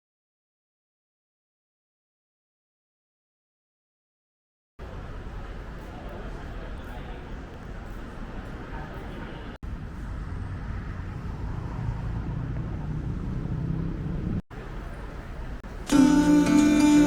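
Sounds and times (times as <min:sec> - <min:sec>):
low rumble of road traffic: 0:04.8 - 0:16.7.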